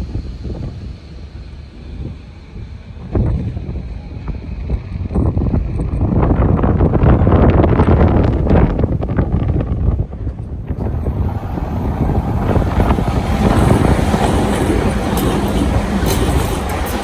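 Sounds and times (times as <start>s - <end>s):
wind buffeting microphone: 4.6s - 17.0s
train passing: 10.4s - 17.0s.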